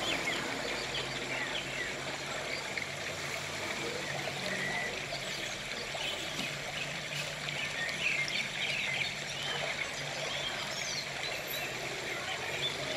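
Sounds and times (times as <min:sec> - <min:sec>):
small birds chirping: 0:03.7 - 0:12.9.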